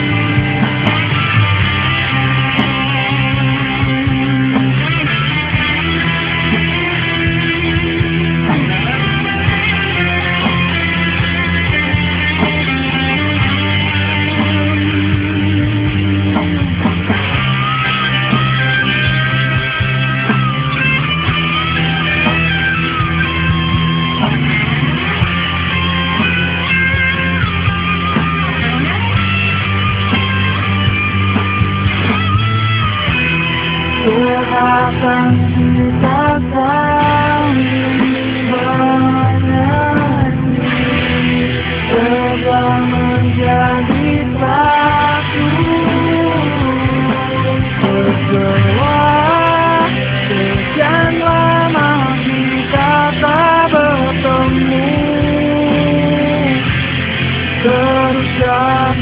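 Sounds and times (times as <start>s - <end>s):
electric guitar lead melody: 0.0s - 59.0s
rock band backing with bass: 0.0s - 59.0s.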